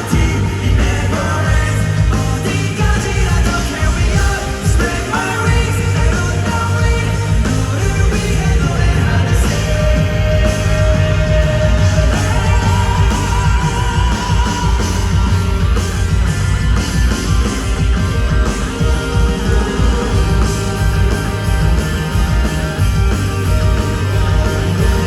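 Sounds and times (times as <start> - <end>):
lead singer singing: 0.0 - 15.8, 18.2 - 22.2
live pop-rock band: 0.0 - 25.0.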